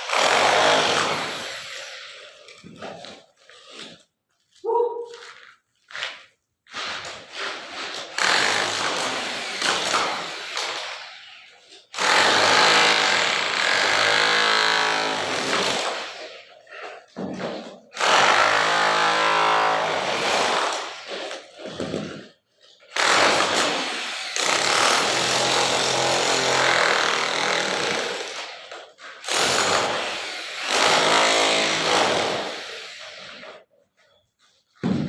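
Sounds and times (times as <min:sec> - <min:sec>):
jackhammer running: 0:00.0 - 0:02.4, 0:08.2 - 0:11.0, 0:12.0 - 0:16.4, 0:23.0 - 0:33.4.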